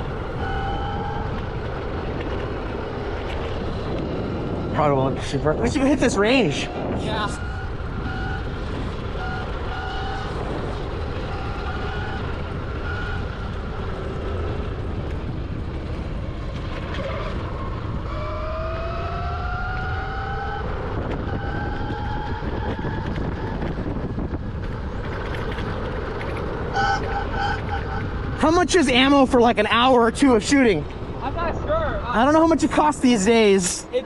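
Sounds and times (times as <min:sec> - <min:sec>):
wind and riding noise: 0:00.0 - 0:34.0
electric motorbike motor whining: 0:06.8 - 0:28.4.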